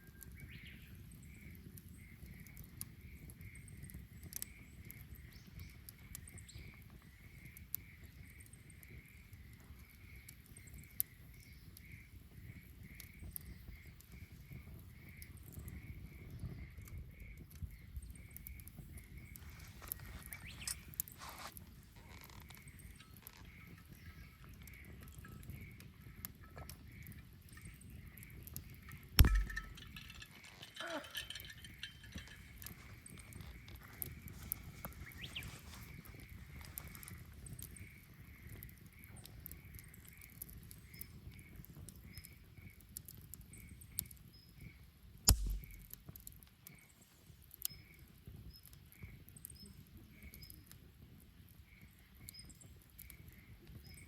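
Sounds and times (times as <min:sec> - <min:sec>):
wood fire crackling: 0:00.2 - 0:54.0
loud sharp bang: 0:45.3 - 0:46.0.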